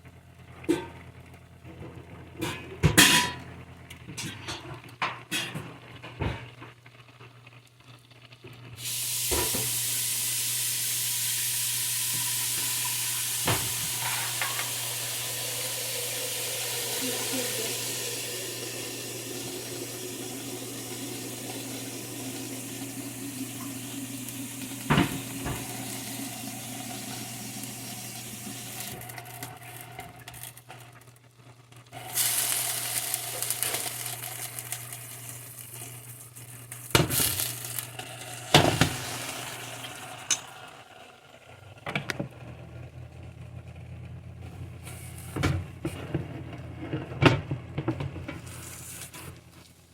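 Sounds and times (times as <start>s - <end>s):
food sizzling in hot oil: 8.7s - 30.8s, 31.9s - 41.1s.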